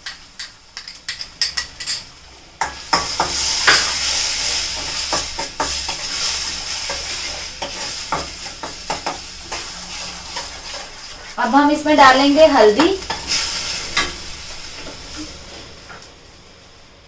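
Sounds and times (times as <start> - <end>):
spoon scraping a pan: 0.0 - 11.4
sizzling in a pan: 0.0 - 17.0.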